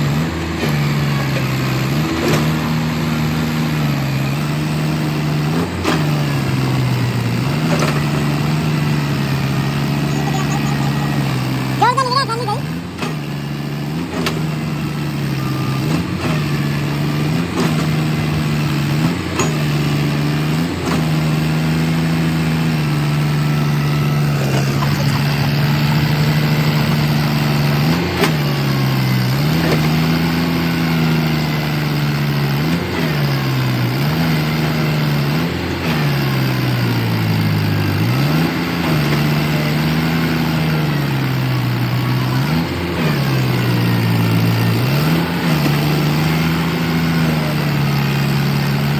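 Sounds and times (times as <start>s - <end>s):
tractor diesel engine under load: 0.0s - 48.9s.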